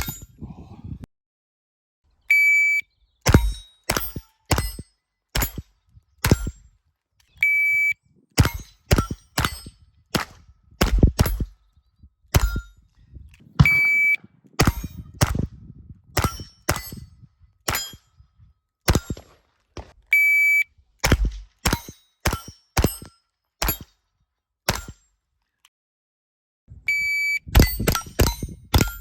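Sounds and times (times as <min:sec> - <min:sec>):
shot timer beeping: 0:02.3 - 0:02.8, 0:07.4 - 0:08.0, 0:13.6 - 0:14.2, 0:26.9 - 0:27.8
rapid rifle shots: 0:13.6 - 0:15.5, 0:18.9 - 0:20.0, 0:21.0 - 0:23.0.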